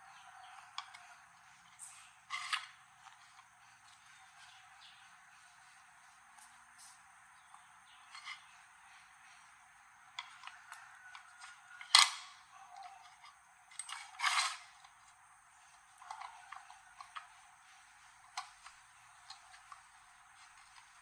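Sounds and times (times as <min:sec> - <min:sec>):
scraping rattle: 0:12.9 - 0:15.0.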